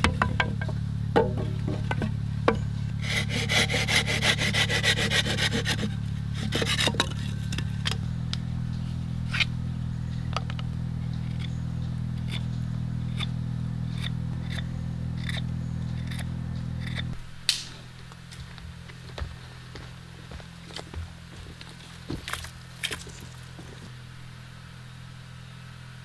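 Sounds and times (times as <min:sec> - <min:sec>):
low steady hum: 0:00.0 - 0:26.0
saw cutting wood: 0:02.9 - 0:08.0.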